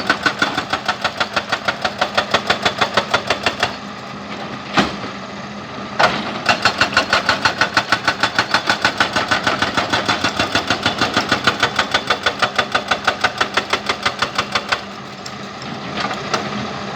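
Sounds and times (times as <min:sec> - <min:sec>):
hydraulic breaker hammering rock: 0:00.0 - 0:03.9, 0:06.0 - 0:15.3.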